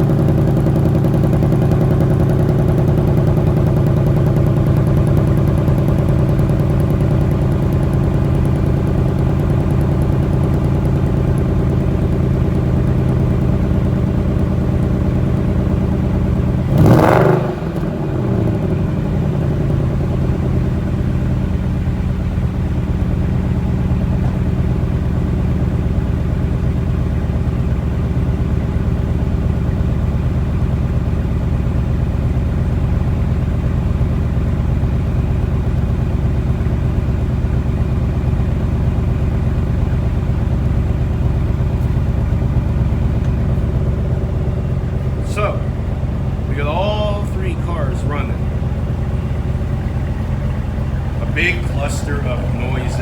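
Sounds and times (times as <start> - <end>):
car engine idling: 0.0 - 53.0
loud engine rush: 13.4 - 20.8, 42.6 - 53.0.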